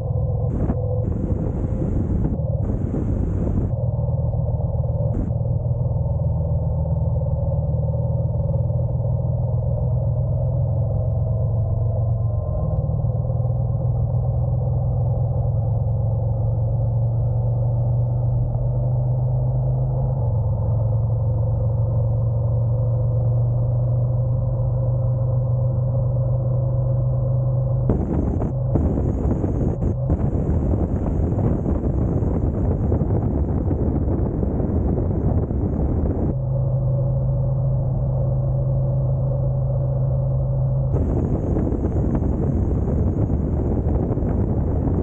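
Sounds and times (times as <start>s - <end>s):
wind buffeting microphone: 0.0s - 4.0s, 5.0s - 5.4s, 27.9s - 36.4s, 40.9s - 45.0s
motorcycle engine droning: 0.0s - 6.2s, 19.8s - 45.0s.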